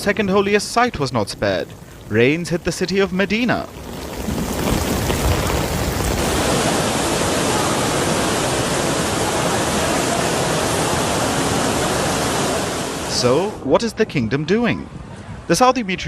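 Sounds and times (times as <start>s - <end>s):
rushing floodwater: 0.0s - 13.6s
torrential rain: 0.0s - 13.6s.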